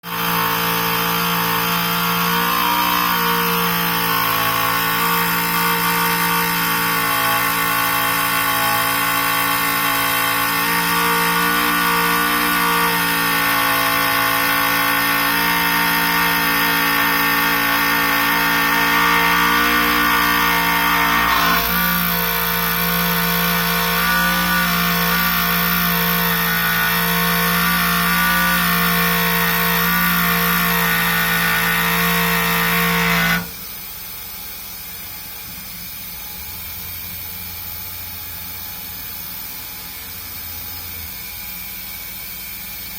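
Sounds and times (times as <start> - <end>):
milling machine cutting: 0.0 - 33.7.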